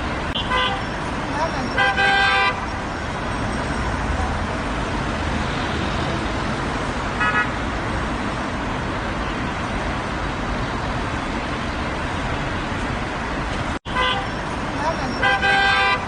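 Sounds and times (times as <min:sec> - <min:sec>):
road traffic rumble: 0:00.0 - 0:16.0
car horn toots: 0:00.4 - 0:00.9, 0:01.8 - 0:02.6, 0:07.2 - 0:07.6, 0:13.9 - 0:14.3, 0:15.2 - 0:16.0.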